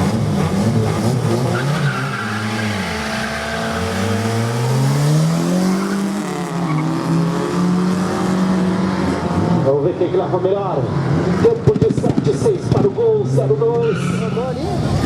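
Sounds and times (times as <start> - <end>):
race car accelerating: 0.0 - 15.0
tyre squeal: 1.4 - 4.4, 13.8 - 14.6.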